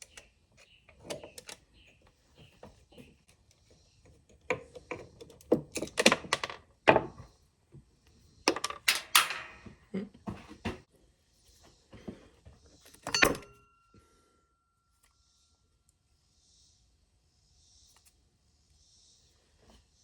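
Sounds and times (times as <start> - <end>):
hand tools and parts clattering: 8.5 - 9.8, 12.9 - 13.5.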